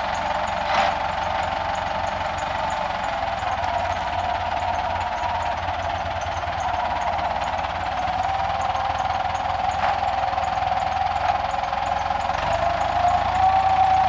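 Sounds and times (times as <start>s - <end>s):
machine engine running with whine: 0.0s - 14.0s.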